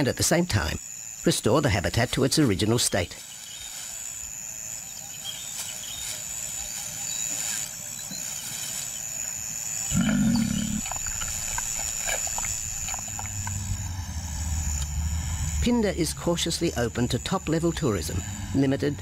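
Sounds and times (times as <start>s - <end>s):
small ticks: 3.3s - 15.5s
lion growling: 9.9s - 15.2s.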